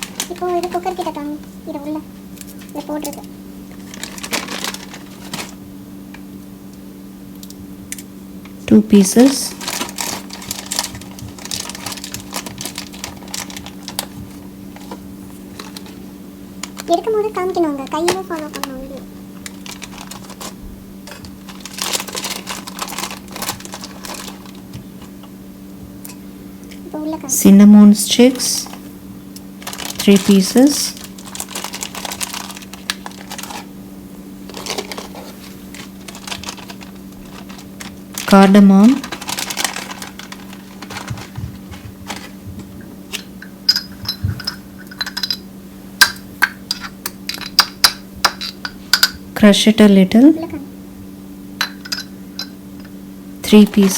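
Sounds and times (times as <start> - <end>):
steady low hum: 0.0 - 53.9
spices crackling in hot oil: 31.0 - 33.8.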